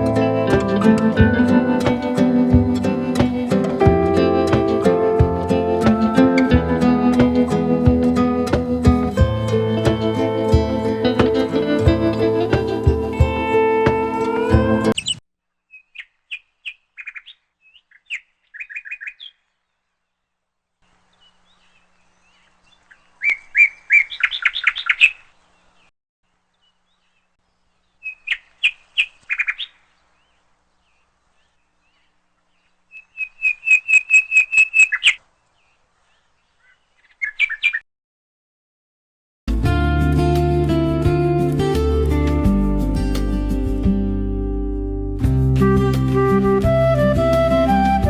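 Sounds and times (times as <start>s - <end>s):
bird chirping: 4.6s - 19.8s, 26.5s - 37.8s.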